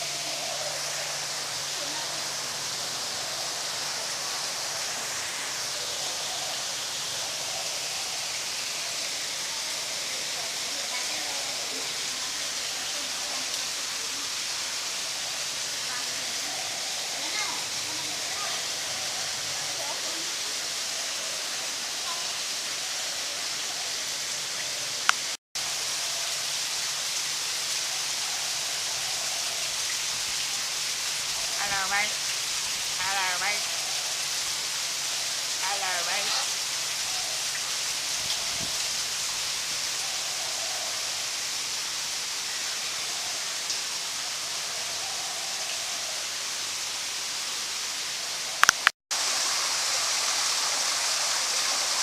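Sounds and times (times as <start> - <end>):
running water hissing: 0.0 - 52.0
sharp click: 48.6 - 48.9.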